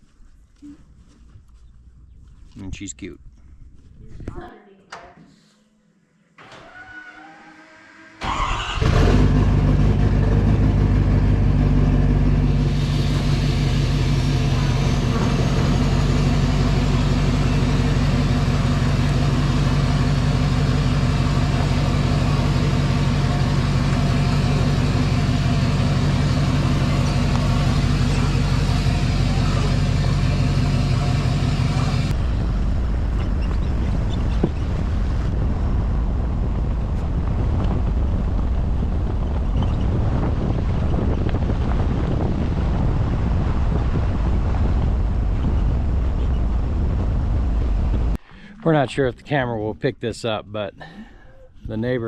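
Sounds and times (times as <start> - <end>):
vehicle engine running: 8.2 - 48.2.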